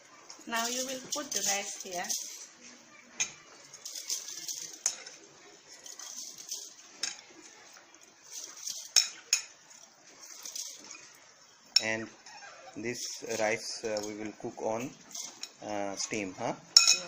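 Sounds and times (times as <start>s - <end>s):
utensil clinking against pot: 11.7s - 12.0s, 16.8s - 17.0s.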